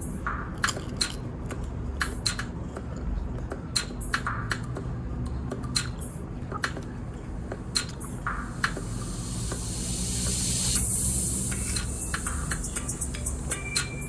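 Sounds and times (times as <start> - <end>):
high hiss: 8.4 - 14.0.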